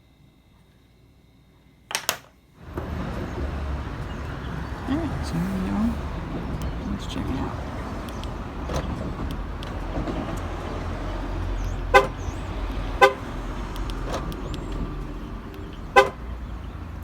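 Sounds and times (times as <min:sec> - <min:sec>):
steady low rumble: 0:02.6 - 0:17.0
car horn chirps: 0:11.6 - 0:13.6, 0:15.7 - 0:16.5.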